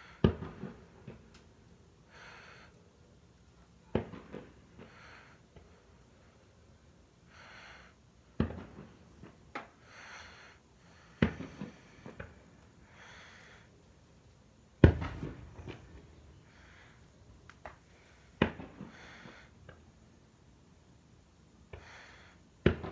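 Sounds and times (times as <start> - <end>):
soft breathing: 4.7 - 6.6, 7.2 - 8.0, 9.6 - 14.2, 14.8 - 19.9
firework bangs: 14.8 - 19.5.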